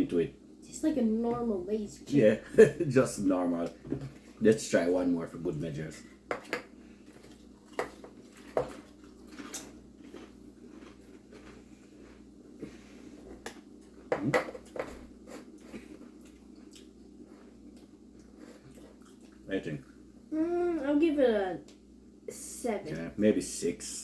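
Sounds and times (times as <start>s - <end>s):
chips crunching: 7.2s - 12.2s.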